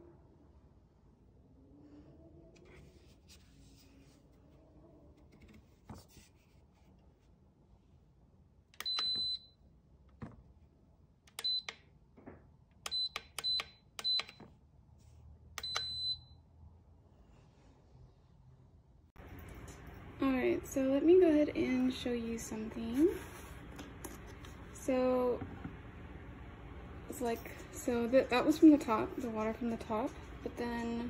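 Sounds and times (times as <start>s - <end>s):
high-pitched appliance beeps: 8.8s - 9.6s, 11.4s - 11.8s, 12.8s - 14.4s, 15.6s - 16.4s.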